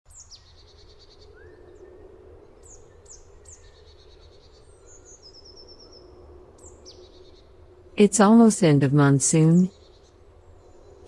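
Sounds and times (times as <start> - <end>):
low background hum: 4.5 - 11.0.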